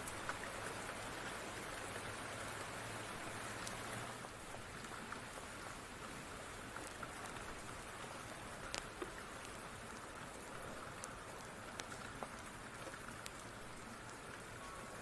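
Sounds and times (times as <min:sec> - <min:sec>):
wood fire crackling: 0:00.0 - 0:00.8, 0:03.2 - 0:15.0
steady rain: 0:00.0 - 0:15.0.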